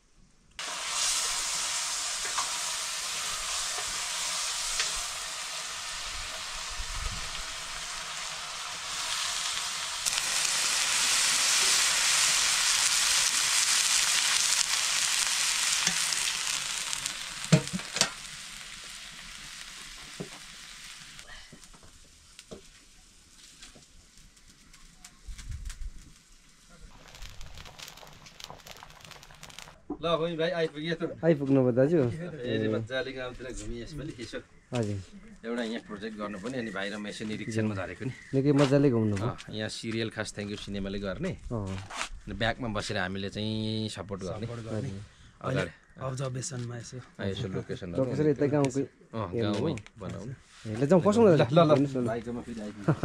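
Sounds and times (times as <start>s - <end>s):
food sizzling in hot oil: 0.6s - 29.8s.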